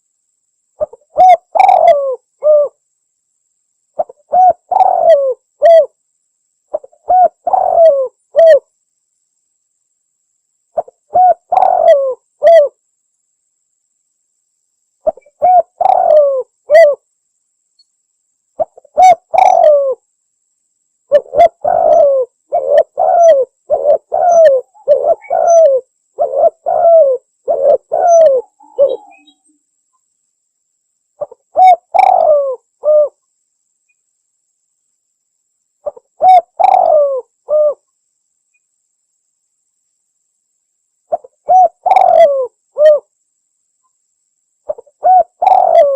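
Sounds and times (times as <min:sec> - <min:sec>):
doves cooing: 0:00.8 - 0:02.7, 0:04.0 - 0:05.9, 0:06.7 - 0:08.6, 0:10.8 - 0:12.7, 0:15.1 - 0:17.0, 0:18.6 - 0:20.0, 0:21.1 - 0:29.4, 0:31.2 - 0:33.1, 0:35.8 - 0:37.8, 0:41.1 - 0:43.0, 0:44.7 - 0:45.9.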